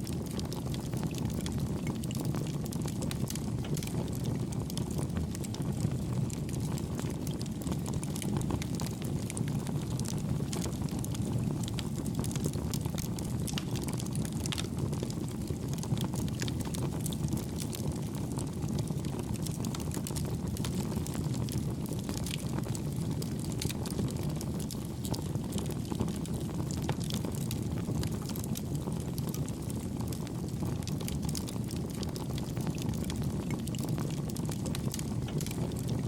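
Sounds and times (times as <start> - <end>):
campfire rushing: 0.0 - 36.0
soft fire crackles: 0.0 - 36.0.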